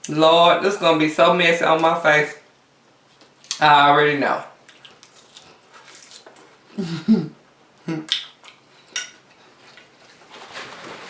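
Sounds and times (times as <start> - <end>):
person humming: 6.8 - 8.1.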